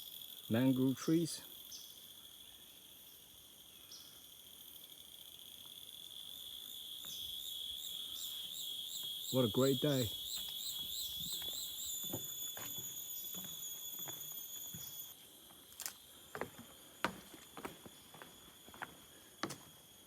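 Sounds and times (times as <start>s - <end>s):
high insect buzz: 0.0s - 20.0s
footsteps on wooden boardwalk: 10.3s - 19.8s.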